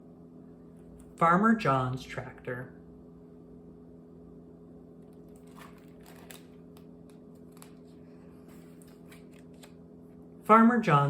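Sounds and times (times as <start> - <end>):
low electrical hum: 0.0 - 11.0
paper rustling: 5.0 - 9.8.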